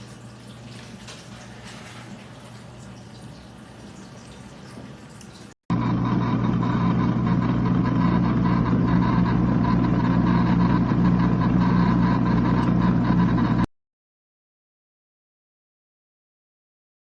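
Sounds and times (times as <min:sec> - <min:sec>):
small electric motor humming: 0:05.7 - 0:13.7.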